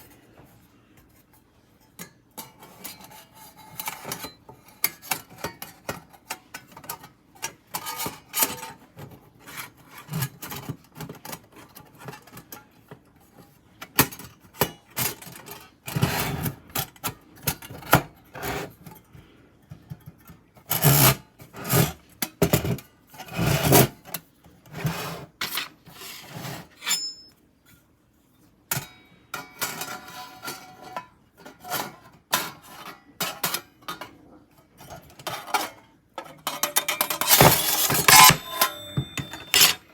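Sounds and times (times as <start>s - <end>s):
objects scraping and knocking: 36.4s - 39.9s.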